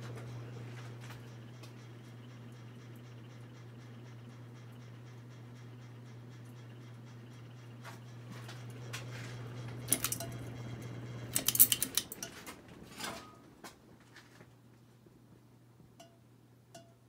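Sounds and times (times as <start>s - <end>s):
ceiling fan motor hum: 0.0s - 17.0s
sharp metallic clicks: 9.9s - 10.4s, 11.3s - 12.3s.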